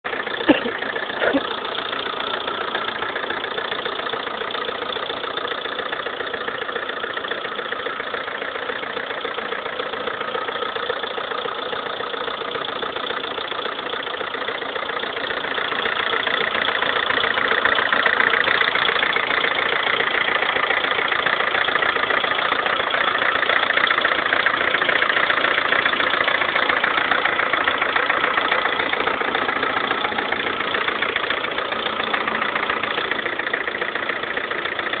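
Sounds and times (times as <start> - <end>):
engine idling with knock: 0.0 - 35.0.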